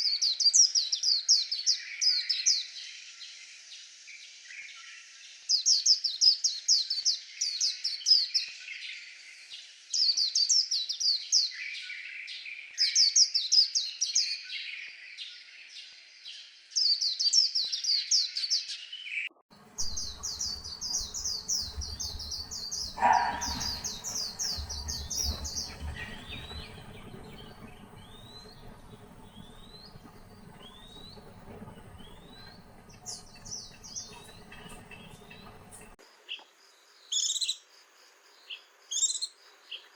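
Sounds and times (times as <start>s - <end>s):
bird twittering song: 0.0s - 39.9s
low hum: 19.5s - 36.0s
bird short rising calls: 19.8s - 36.0s.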